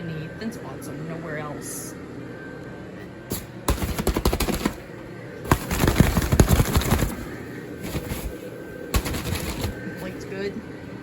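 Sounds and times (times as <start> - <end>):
handling crackling and rustling: 5.5 - 10.2.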